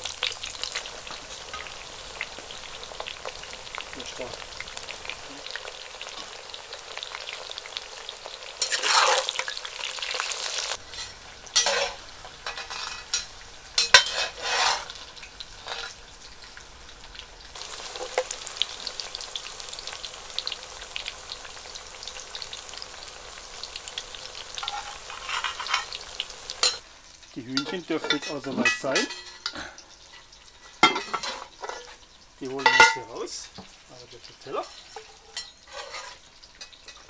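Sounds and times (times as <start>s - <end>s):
food sizzling in hot oil: 0.0s - 37.0s.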